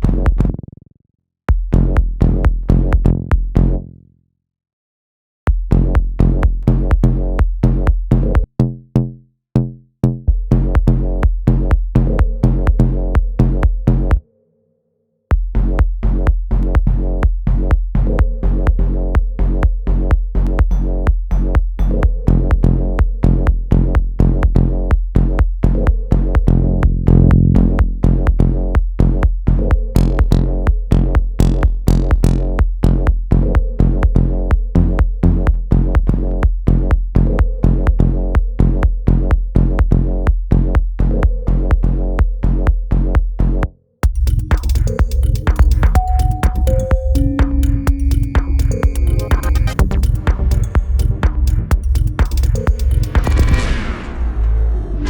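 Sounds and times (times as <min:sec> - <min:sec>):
sustained bass line: 0:15.6 - 0:53.6
drum machine beat: 0:20.6 - 0:22.2, 0:26.4 - 0:28.6, 0:44.0 - 0:53.5.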